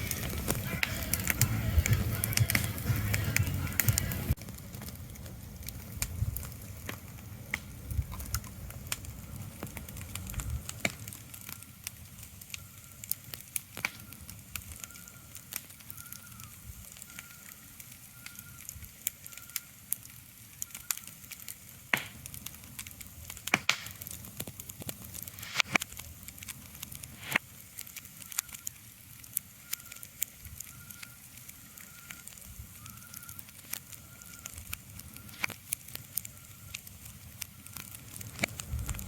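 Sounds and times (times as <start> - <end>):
sharp crackles and clicks: 0.0 - 39.0
low rumble: 38.2 - 39.0.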